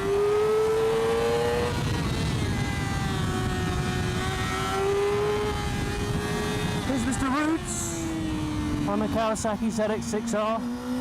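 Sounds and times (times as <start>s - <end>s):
motorcycle engine revving: 0.0s - 11.0s
wind rush: 0.1s - 9.9s.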